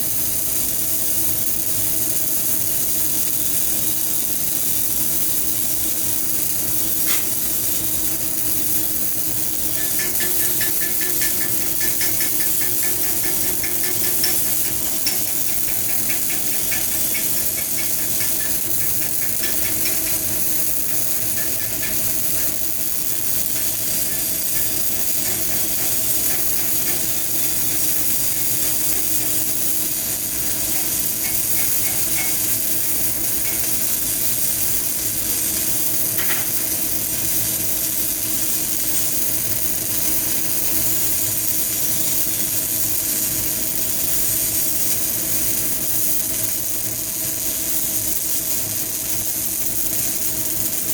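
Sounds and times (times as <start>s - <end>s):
welding arc crackling: 0.0s - 50.9s
steady hum: 9.1s - 36.8s.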